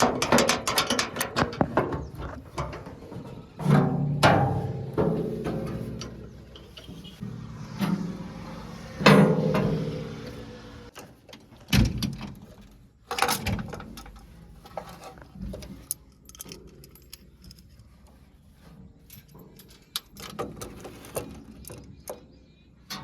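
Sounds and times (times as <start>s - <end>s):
heavy metallic clanks: 0.0s - 11.0s
rattling and clicks: 0.0s - 23.0s
backhoe engine surge: 4.6s - 11.0s.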